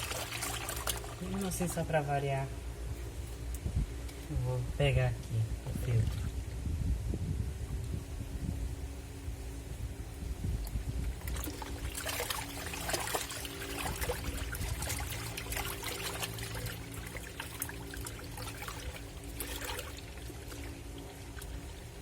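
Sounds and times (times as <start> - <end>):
water pouring and trickling: 0.0 - 1.8, 10.6 - 22.0
steady low hum: 0.0 - 22.0.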